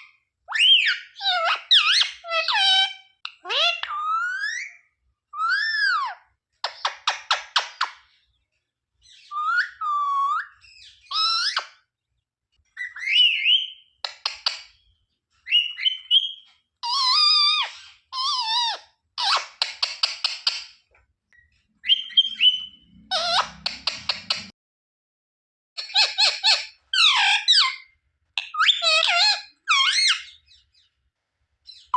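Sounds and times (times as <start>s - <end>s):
parrot whistles and chattering trills: 0.5s - 8.1s, 9.1s - 11.8s, 12.8s - 14.8s, 15.4s - 20.7s, 21.8s - 24.5s, 25.8s - 30.6s.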